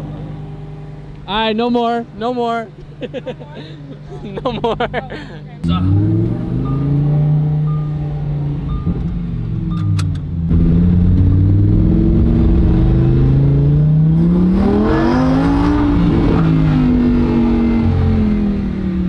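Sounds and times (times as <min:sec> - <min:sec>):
short beeps: 0:05.6 - 0:09.1
sports car engine revving: 0:05.6 - 0:19.0.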